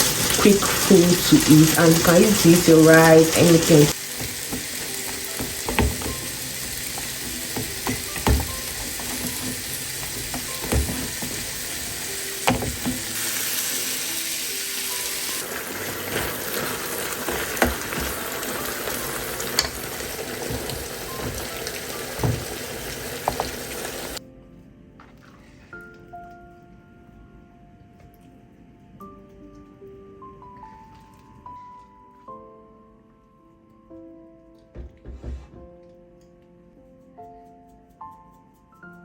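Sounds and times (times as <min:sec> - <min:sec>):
stir-fry sizzling in a pan: 0:00.0 - 0:24.2
utensil knocking against pan: 0:04.1 - 0:13.1.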